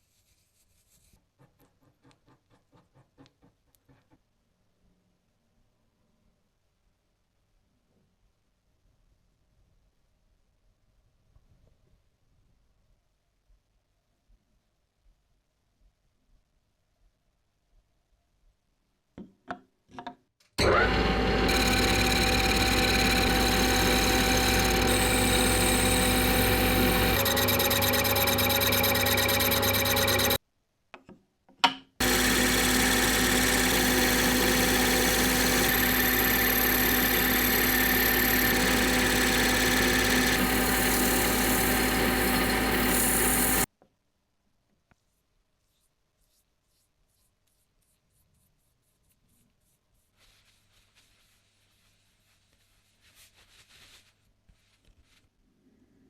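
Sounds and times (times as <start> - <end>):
electric machine tool motor humming: 20.6 - 30.4, 32.0 - 43.7.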